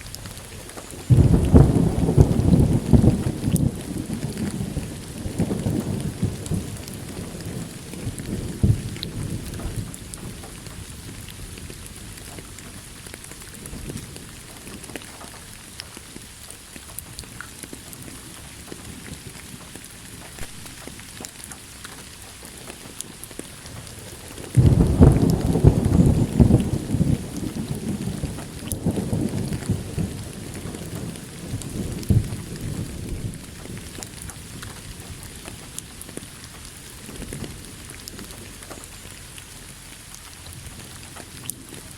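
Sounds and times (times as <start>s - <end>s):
steady rain falling: 0.0s - 41.9s
rumbling thunder: 0.3s - 15.1s, 23.5s - 36.2s.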